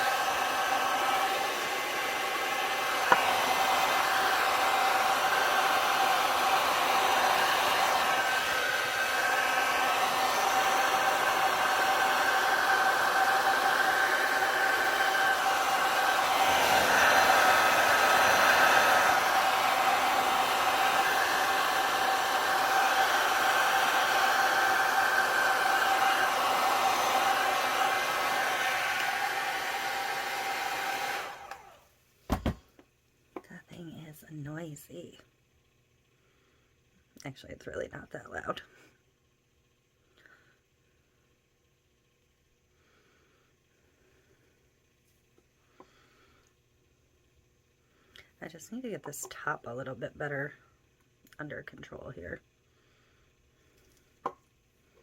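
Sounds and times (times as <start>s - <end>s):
heat gun blowing: 0.0s - 31.8s.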